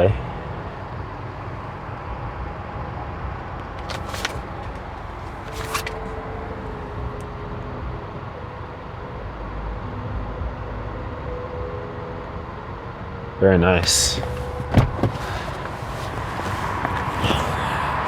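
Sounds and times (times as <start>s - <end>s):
low vehicle rumble: 0.0s - 18.0s
sharp rustling clicks: 3.6s - 6.2s.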